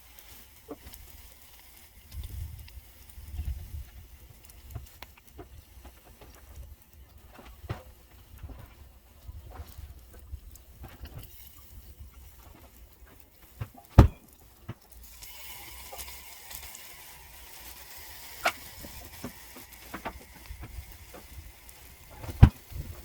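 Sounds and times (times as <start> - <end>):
charcoal sizzling and crackling: 0.0 - 23.0
steady hiss: 0.0 - 23.0
sharp knocks: 14.0 - 14.2.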